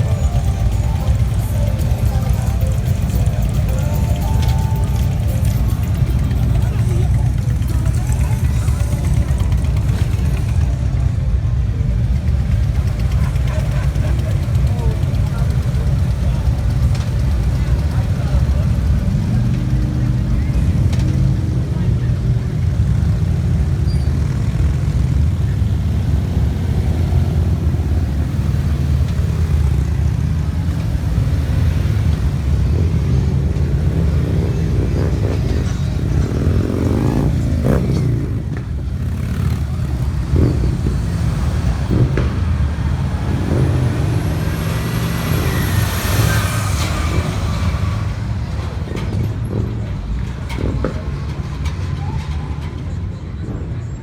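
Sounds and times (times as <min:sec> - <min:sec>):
motorcycle engines rumbling: 0:00.0 - 0:54.0
motorcycle passing close: 0:12.3 - 0:49.2.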